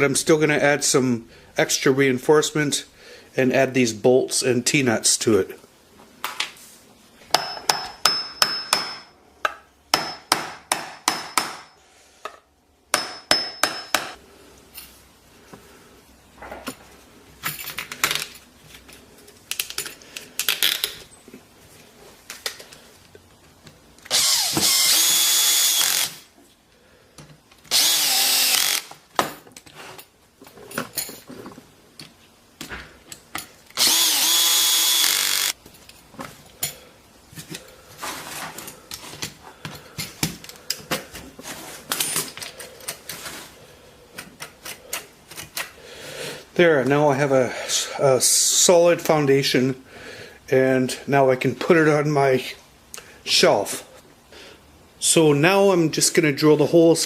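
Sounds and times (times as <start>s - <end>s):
power drill running: 24.1s - 26.2s, 27.7s - 28.9s, 33.8s - 35.6s.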